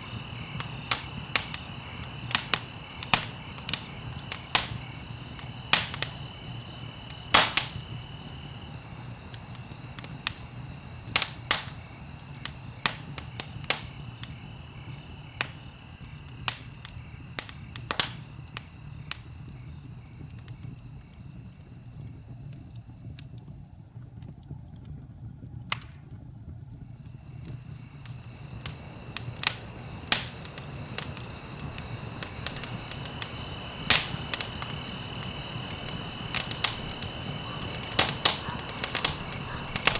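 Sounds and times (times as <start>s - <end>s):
wood fire crackling: 0.0s - 39.9s
high insect-like tone: 27.2s - 39.9s.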